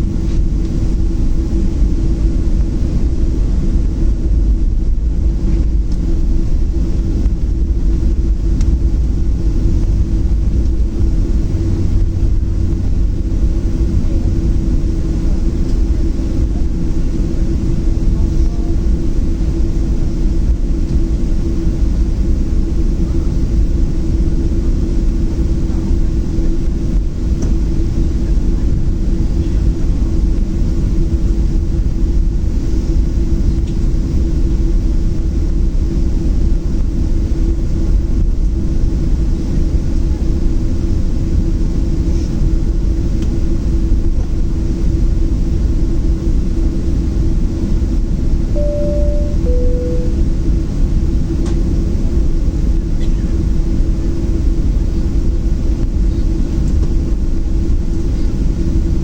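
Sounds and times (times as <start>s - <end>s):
airplane cabin rumble: 0.0s - 59.0s
mid-pitched hum: 0.0s - 59.0s.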